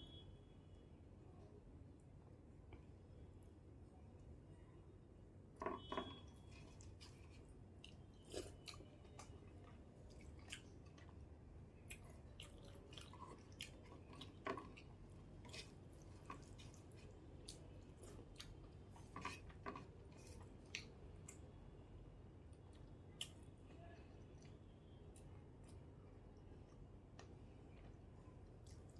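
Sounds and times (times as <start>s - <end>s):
person chewing food: 6.3s - 21.5s.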